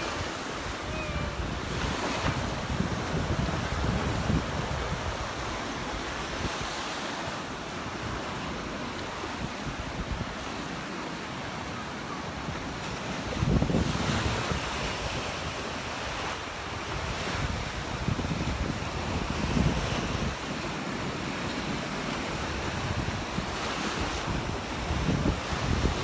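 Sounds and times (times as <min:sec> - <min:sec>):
wind buffeting microphone: 0:00.0 - 0:06.9, 0:12.4 - 0:26.0
surf breaking on beach: 0:00.0 - 0:26.0.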